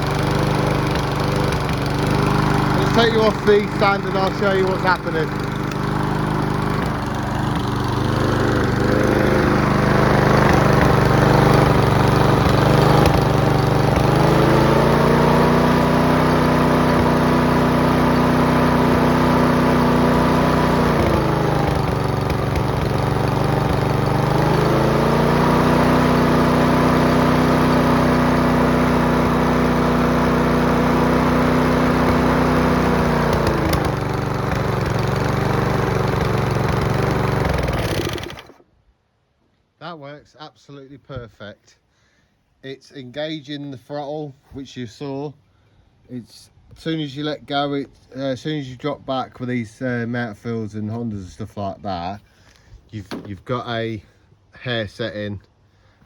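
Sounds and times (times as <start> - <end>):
lawnmower engine revving: 0.0 - 38.7, 53.0 - 54.2.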